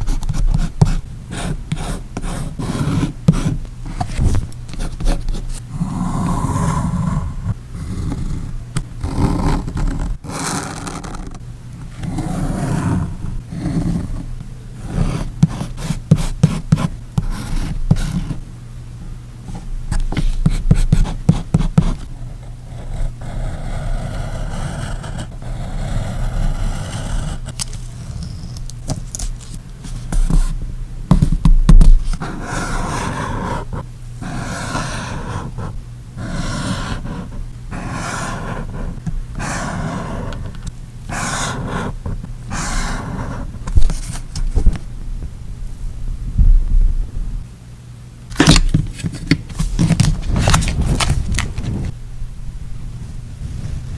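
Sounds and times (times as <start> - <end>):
paper and tape handled: 27.5 - 30.5, 48.3 - 51.9.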